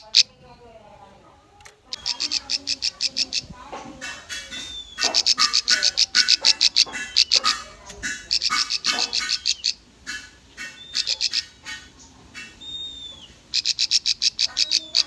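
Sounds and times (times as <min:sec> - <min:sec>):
bird trilling song: 0:01.8 - 0:15.0
thin whistled bird notes: 0:12.0 - 0:13.3.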